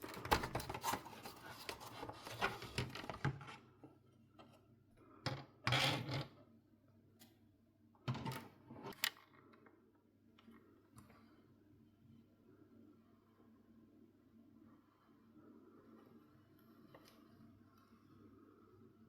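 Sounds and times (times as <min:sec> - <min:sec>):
plastic and metal parts scraping: 0:00.0 - 0:03.6.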